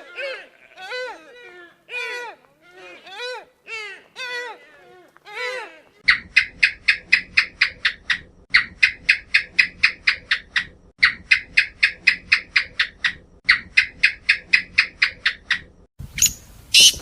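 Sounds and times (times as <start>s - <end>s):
animal rapid high chirps: 6.0s - 17.0s.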